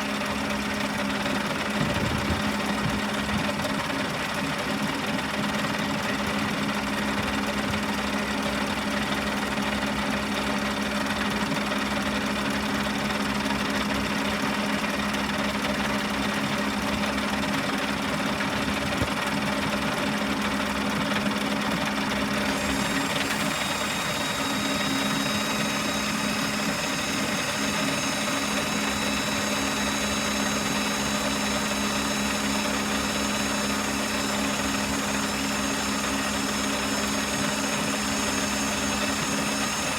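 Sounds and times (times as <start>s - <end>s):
motor humming: 0.0s - 4.0s, 21.7s - 39.9s.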